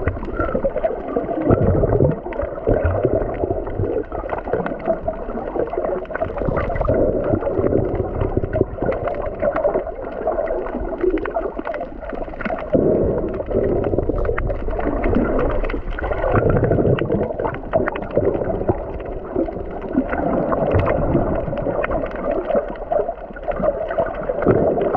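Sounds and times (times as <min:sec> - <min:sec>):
small clicks and crackles: 0:00.0 - 0:24.9
underwater water sloshing: 0:00.0 - 0:24.9.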